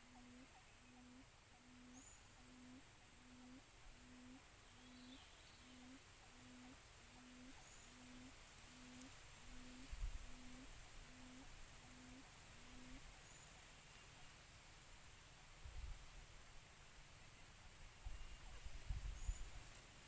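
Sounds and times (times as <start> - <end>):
quail low hooting call: 0.0 - 13.1.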